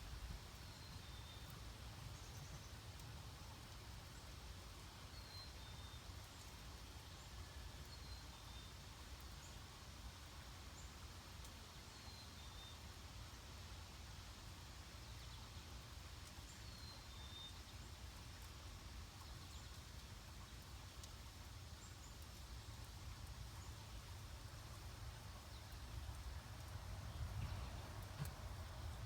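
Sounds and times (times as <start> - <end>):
faint ticks: 2.2 - 4.2, 19.2 - 24.3
low wind rumble: 25.0 - 29.0.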